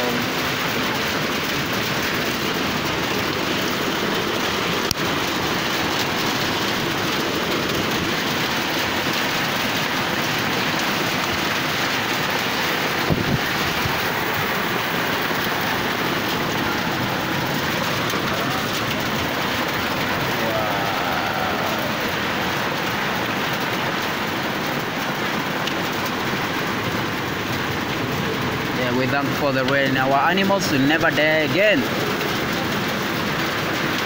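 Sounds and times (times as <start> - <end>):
rain on dirt street: 0.0 - 34.0.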